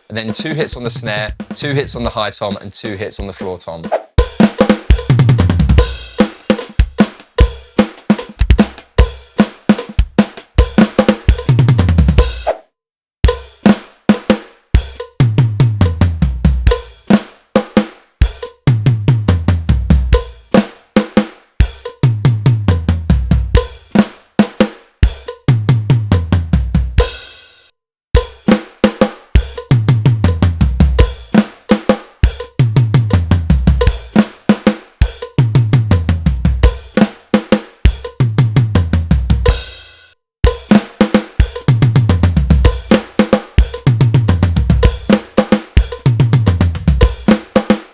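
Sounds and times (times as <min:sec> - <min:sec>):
snare and kick drum hits: 0:00.0 - 0:12.6, 0:40.5 - 0:47.9.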